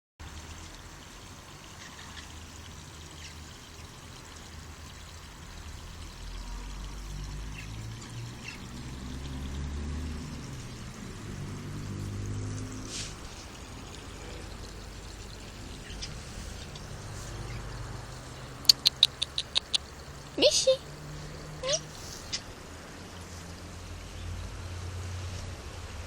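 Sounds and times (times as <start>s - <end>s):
water pouring: 0.2s - 19.0s.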